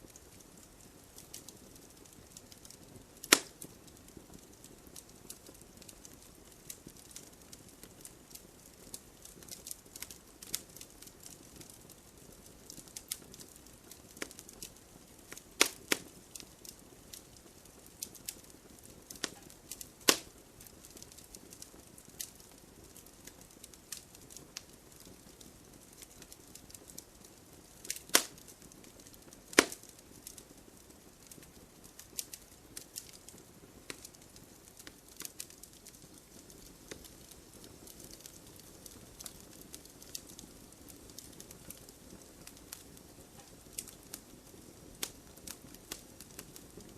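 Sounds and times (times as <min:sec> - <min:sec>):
wood fire crackling: 0:00.0 - 0:46.9
hiss of flame: 0:27.3 - 0:30.5.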